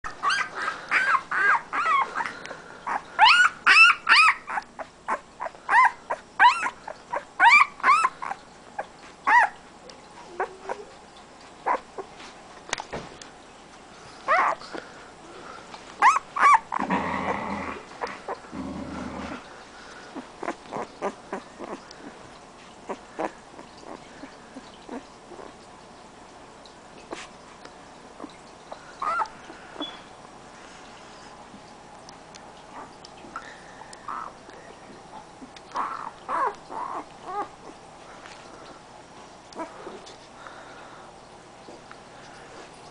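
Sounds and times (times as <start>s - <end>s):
puppy whining and yelping: 0.1s - 11.0s, 11.6s - 12.3s, 14.2s - 14.8s, 16.0s - 16.9s, 20.1s - 22.2s, 22.9s - 25.6s, 28.2s - 30.1s, 34.0s - 34.4s, 35.4s - 37.8s, 39.6s - 40.1s.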